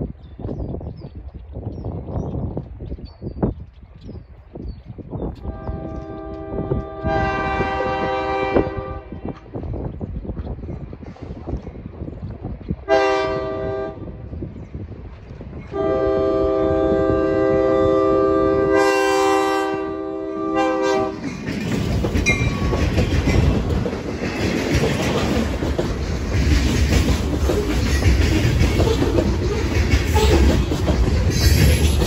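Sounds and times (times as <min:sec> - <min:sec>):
locomotive horn blasts: 0:05.4 - 0:09.3, 0:12.9 - 0:14.0, 0:15.7 - 0:21.2
train rumbling past: 0:05.4 - 0:32.0
wheels clacking over rail joints: 0:20.9 - 0:32.0.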